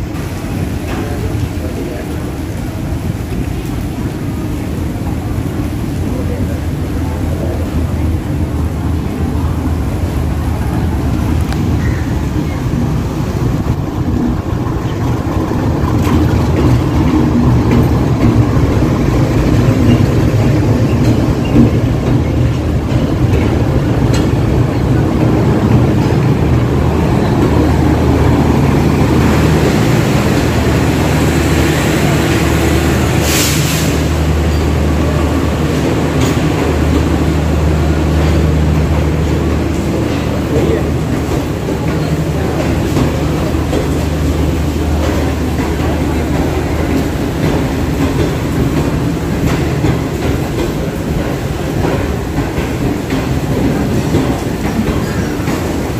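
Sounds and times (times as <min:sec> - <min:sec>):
heavy rain falling: 0:00.0 - 0:55.9
locomotive engine running: 0:00.0 - 0:55.9
wheels clicking over rail joints: 0:10.6 - 0:33.2, 0:34.4 - 0:55.9.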